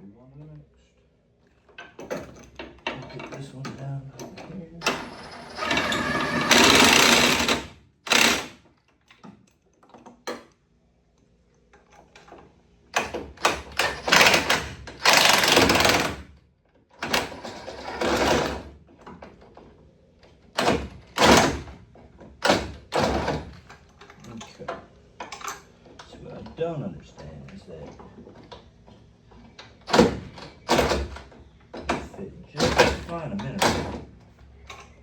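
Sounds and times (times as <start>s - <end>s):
impact wrench bursts: 4.8s - 8.6s, 13.8s - 16.2s.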